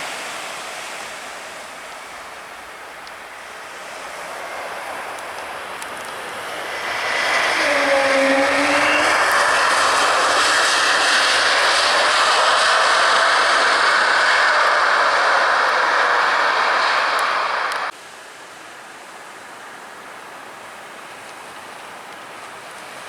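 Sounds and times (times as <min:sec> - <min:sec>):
jet engines rushing: 0:03.4 - 0:17.9
whining tones: 0:06.8 - 0:17.9.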